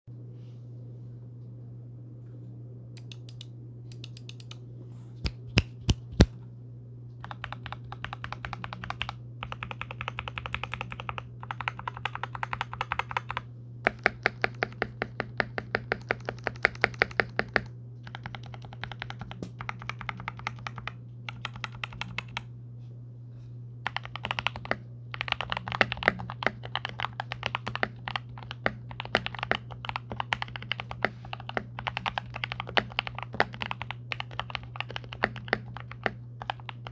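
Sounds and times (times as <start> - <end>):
low steady hum: 0.1 - 36.9
typing on mechanical keyboard: 7.2 - 22.4, 23.9 - 36.9.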